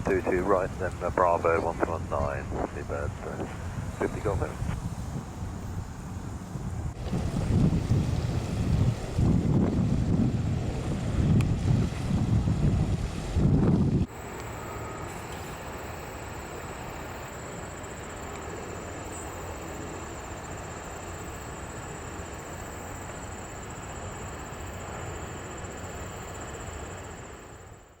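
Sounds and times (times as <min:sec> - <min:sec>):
distant jet aircraft rumble: 0:00.0 - 0:27.9
high-pitched whine: 0:14.1 - 0:27.3.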